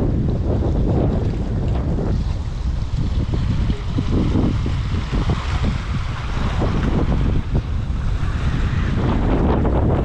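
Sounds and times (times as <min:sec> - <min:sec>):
waves washing on shore: 0:00.0 - 0:10.0
wind buffeting microphone: 0:00.0 - 0:10.0.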